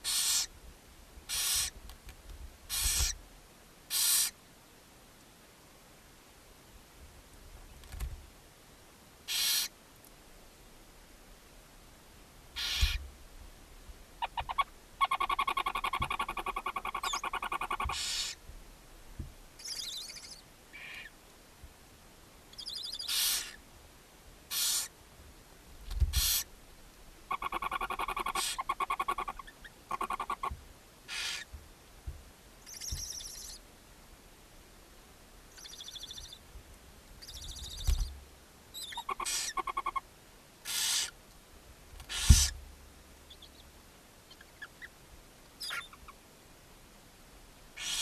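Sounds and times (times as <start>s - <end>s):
owl nestlings chittering: 0.0s - 0.5s, 1.3s - 1.8s, 2.7s - 3.2s, 3.9s - 4.4s, 9.3s - 9.7s, 12.6s - 13.0s, 14.2s - 18.4s, 19.6s - 21.1s, 22.6s - 23.6s, 24.5s - 24.9s, 26.1s - 26.5s, 27.3s - 30.5s, 31.1s - 31.5s, 32.6s - 33.6s, 35.5s - 36.4s, 37.2s - 38.1s, 38.8s - 40.0s, 40.6s - 41.2s, 42.1s - 42.6s, 47.8s - 48.0s
owl nestlings hissing: 0.0s - 0.5s, 1.3s - 1.8s, 2.7s - 3.2s, 3.9s - 4.4s, 9.3s - 9.8s, 12.6s - 13.0s, 14.2s - 18.4s, 22.6s - 23.6s, 24.5s - 24.9s, 26.1s - 26.5s, 27.3s - 30.5s, 31.1s - 31.5s, 32.7s - 33.6s, 38.8s - 40.0s, 40.6s - 41.2s, 42.0s - 42.6s, 47.8s - 48.0s
dull thumps in nest box: 42.2s - 42.6s.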